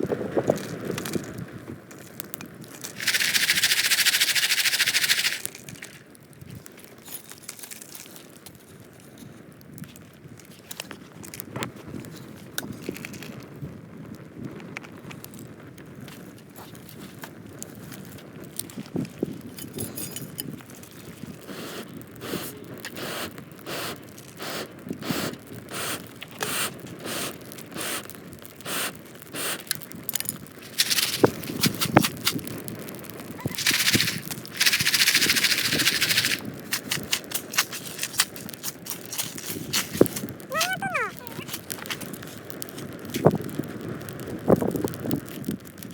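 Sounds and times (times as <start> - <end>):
popcorn popping in shaken pan: 0.0 - 8.4, 20.4 - 45.9
loud hiss: 2.9 - 5.6, 21.5 - 29.7, 30.6 - 32.0, 33.6 - 38.2.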